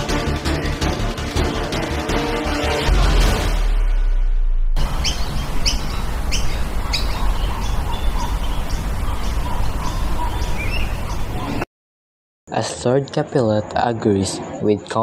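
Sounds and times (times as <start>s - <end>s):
low rumble: 2.8s - 7.9s
small birds chirping: 4.8s - 11.6s.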